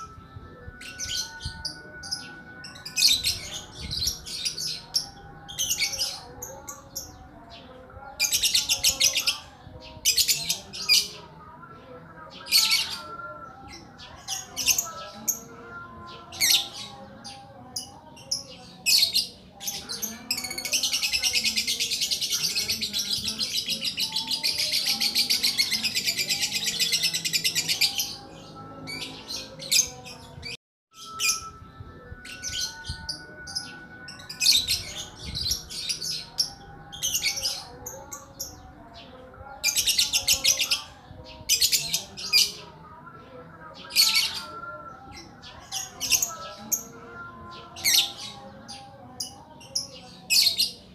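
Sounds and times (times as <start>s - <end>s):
bird chirping and trilling: 0.0s - 11.2s, 32.2s - 42.6s.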